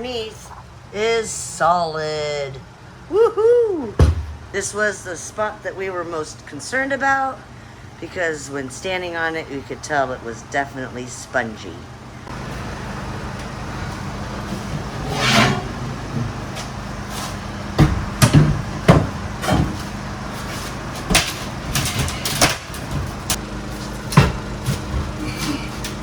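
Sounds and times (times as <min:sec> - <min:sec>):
steady low hum: 0:00.0 - 0:26.0
crowbar prying up floorboards: 0:17.8 - 0:19.8.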